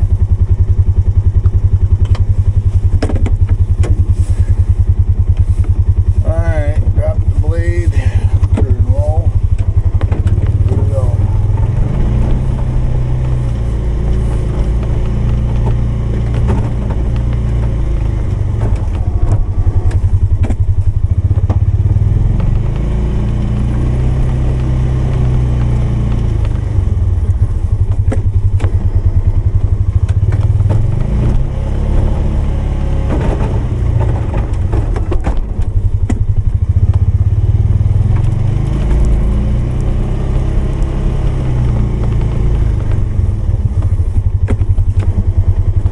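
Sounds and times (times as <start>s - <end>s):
engine revving under load: 0.9s - 45.9s
clatters and knocks: 1.4s - 4.2s, 8.4s - 32.3s, 33.0s - 37.1s.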